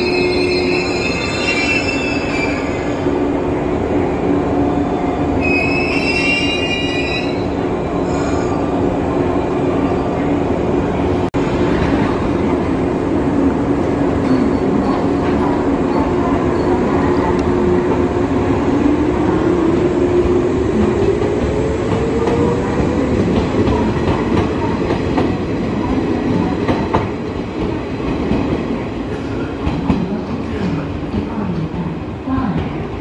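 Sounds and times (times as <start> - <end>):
high metallic squeal: 0.0 - 2.9.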